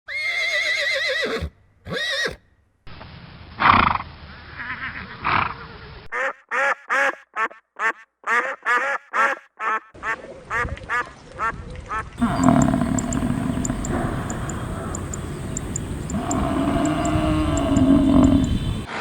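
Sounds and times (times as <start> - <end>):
horse whinnying: 0.1 - 2.4
duck quacking: 6.1 - 18.9
loud animal calls: 6.1 - 19.0.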